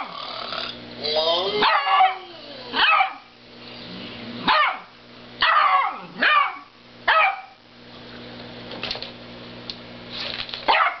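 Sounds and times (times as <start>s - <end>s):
dog barking: 1.6s - 3.3s, 4.4s - 7.6s, 10.7s - 11.0s.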